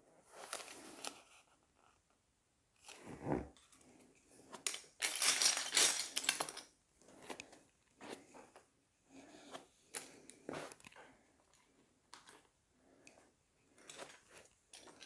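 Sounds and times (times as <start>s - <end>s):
plastic pieces clicking and clattering: 4.5s - 6.7s
rustling and rattling: 4.5s - 7.2s.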